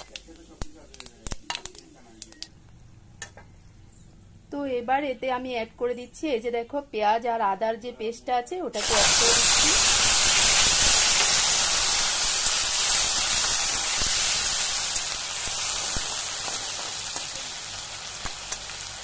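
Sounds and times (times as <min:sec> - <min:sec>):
paste sizzling in hot oil: 0:08.8 - 0:19.0.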